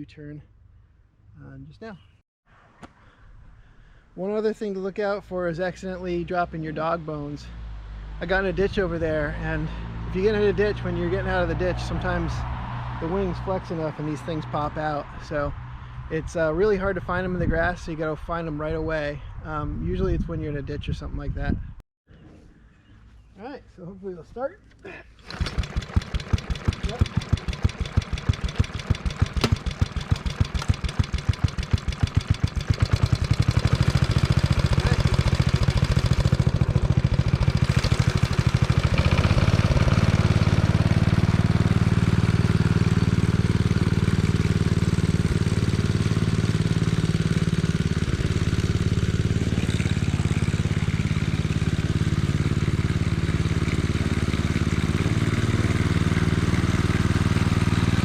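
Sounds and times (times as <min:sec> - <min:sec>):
reel mower engine running: 0:25.2 - 0:58.0.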